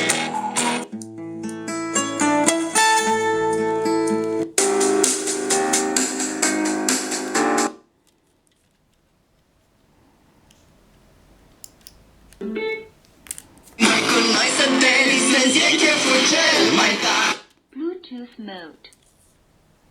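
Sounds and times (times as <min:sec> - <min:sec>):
guitar music through small speaker: 0:00.0 - 0:07.6, 0:13.8 - 0:17.4.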